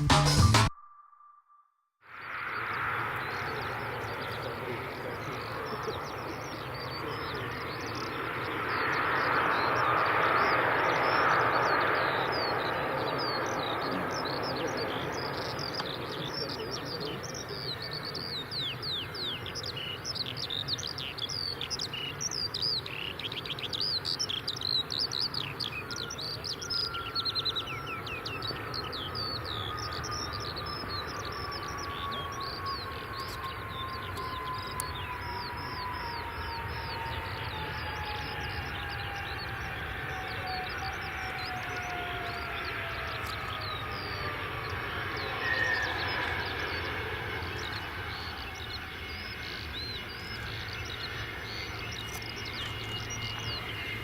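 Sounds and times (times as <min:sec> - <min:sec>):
jet engine whine: 0:02.1 - 0:54.0
low rumble: 0:02.2 - 0:15.6
birds chirping: 0:02.2 - 0:54.0.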